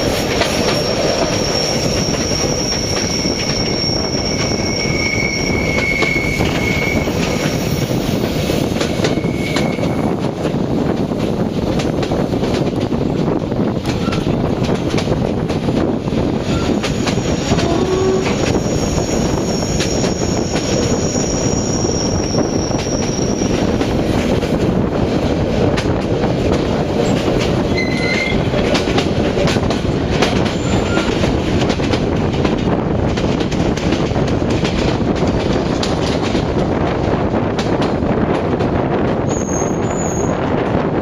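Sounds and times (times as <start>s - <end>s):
train wheels rumbling and rattling: 0.0s - 41.0s
thin high squeal: 0.7s - 7.2s.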